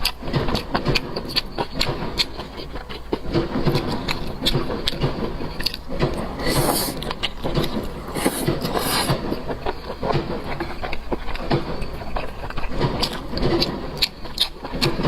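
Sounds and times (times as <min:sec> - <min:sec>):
rubbing and scraping: 0:02.1 - 0:14.1
short hissing bursts: 0:06.2 - 0:07.1, 0:08.0 - 0:09.4.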